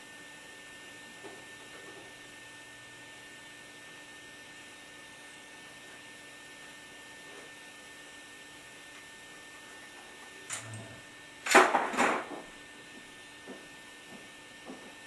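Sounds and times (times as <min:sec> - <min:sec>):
steady low hum: 0:10.0 - 0:11.5.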